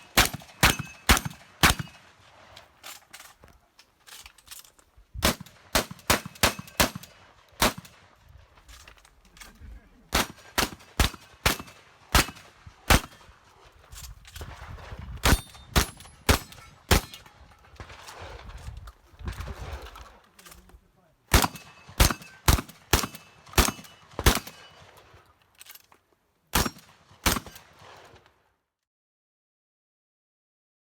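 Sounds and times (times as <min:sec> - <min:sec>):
pump-action shotgun firing: 0:00.0 - 0:02.1, 0:05.2 - 0:08.1, 0:10.1 - 0:13.3, 0:15.2 - 0:17.2, 0:21.3 - 0:25.0, 0:26.6 - 0:28.0.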